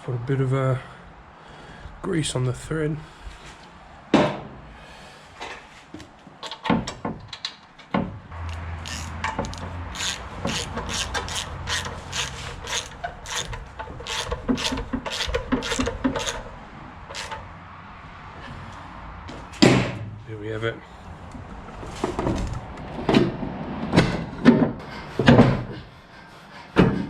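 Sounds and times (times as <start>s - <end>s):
threaded handle rasping and clicking: 8.4s - 16.5s, 17.1s - 17.4s.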